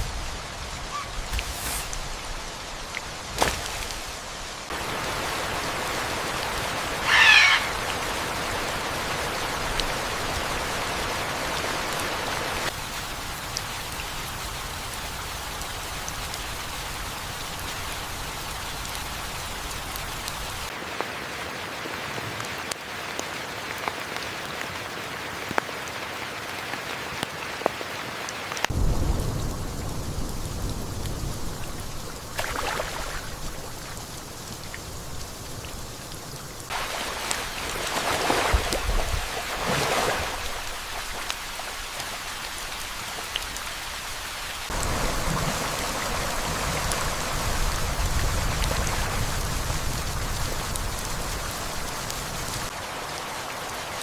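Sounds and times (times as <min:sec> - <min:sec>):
steady rain falling: 0:00.0 - 0:54.0
loud animal call: 0:07.0 - 0:07.8.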